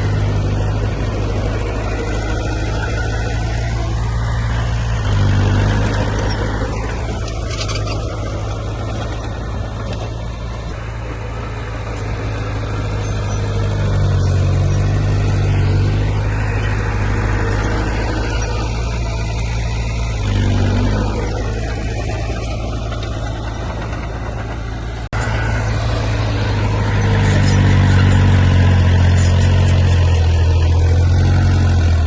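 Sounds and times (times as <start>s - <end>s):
heavy diesel engine under load: 0.0s - 32.0s.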